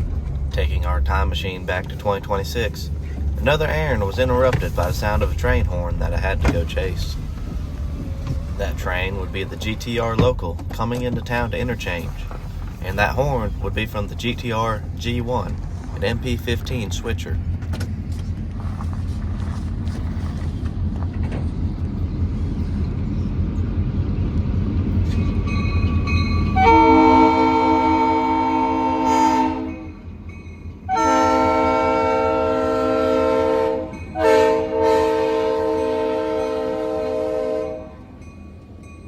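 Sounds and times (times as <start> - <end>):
low rumble: 0.0 - 30.9
diesel locomotive horn blasts: 26.4 - 30.1, 30.9 - 38.2.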